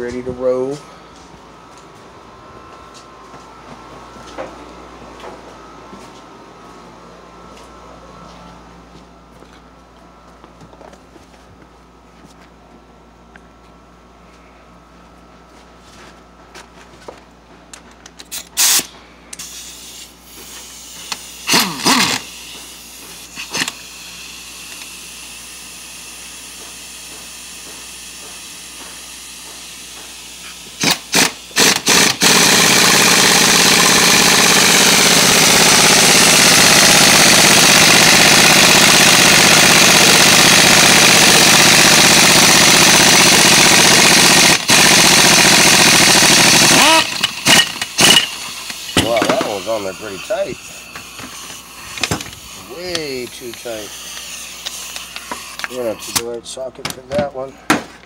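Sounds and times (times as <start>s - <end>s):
tool clicks: 30.8s - 49.6s, 50.9s - 56.3s
impact wrench hammering: 30.8s - 56.2s.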